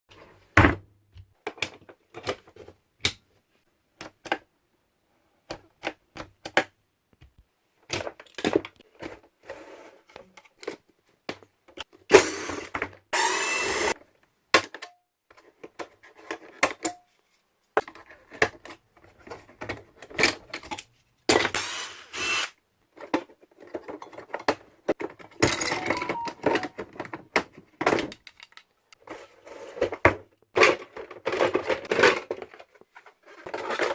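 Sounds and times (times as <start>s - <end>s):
clicks and knocks of plastic parts: 1.1s - 3.3s, 3.9s - 4.5s, 5.4s - 9.3s, 17.7s - 21.5s, 22.9s - 29.0s, 29.8s - 33.9s
power tool whirring: 12.2s - 14.0s, 21.6s - 22.6s.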